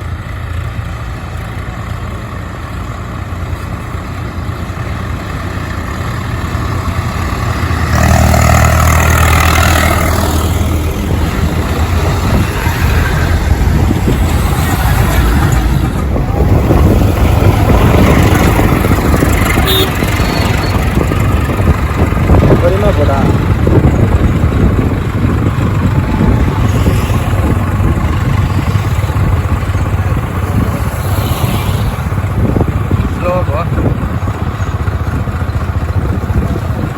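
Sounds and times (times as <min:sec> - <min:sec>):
heavy diesel engine passing: 0:00.0 - 0:36.9.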